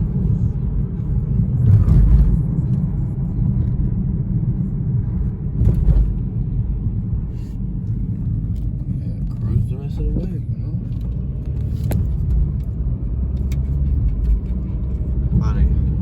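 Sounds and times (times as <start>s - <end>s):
engine and road rumble: 0.0s - 16.0s
car bumps: 5.5s - 6.3s.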